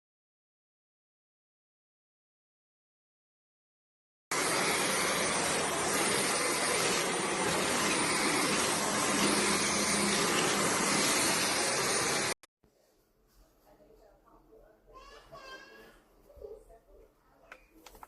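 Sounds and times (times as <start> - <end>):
vacuum cleaner running: 4.3 - 12.5.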